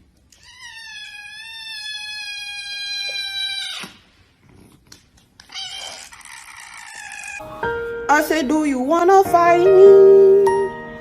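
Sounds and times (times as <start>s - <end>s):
cat crying roughly: 0.3s - 4.0s, 5.4s - 7.4s
cat meowing: 0.3s - 4.0s, 5.4s - 7.4s.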